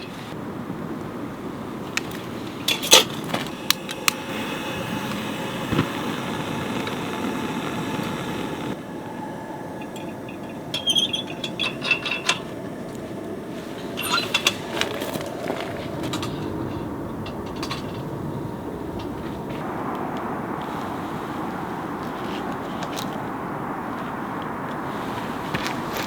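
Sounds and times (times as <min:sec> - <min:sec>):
low rushing background: 0:00.0 - 0:26.0
cookware and utensils clinking: 0:13.9 - 0:16.5.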